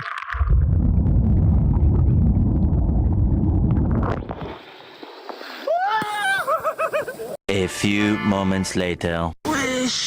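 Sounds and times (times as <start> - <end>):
muffled underwater rumble: 0.4 - 4.3.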